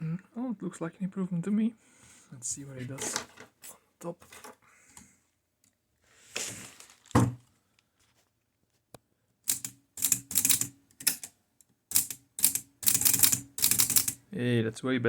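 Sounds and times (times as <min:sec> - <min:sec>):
handling rustle: 0:06.2 - 0:08.3
thump: 0:07.1 - 0:07.4
typewriter keys striking: 0:09.5 - 0:11.3, 0:11.9 - 0:14.2.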